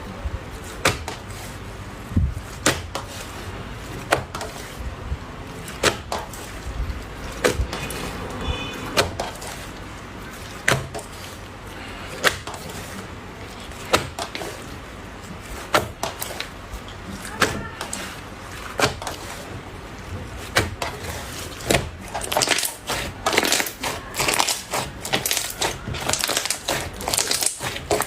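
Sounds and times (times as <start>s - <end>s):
slime popping and crackling: 20.5s - 28.0s.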